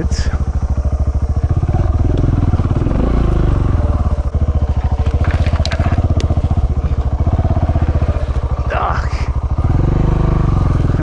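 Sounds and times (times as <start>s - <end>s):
motorcycle engine pulling at low revs: 0.0s - 11.0s
stones clicking under tyres: 1.7s - 3.6s, 4.4s - 8.6s.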